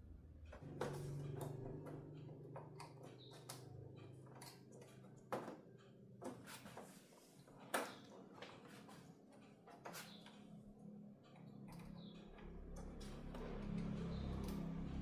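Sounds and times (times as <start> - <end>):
clicks and taps of hard objects: 0.6 - 7.0.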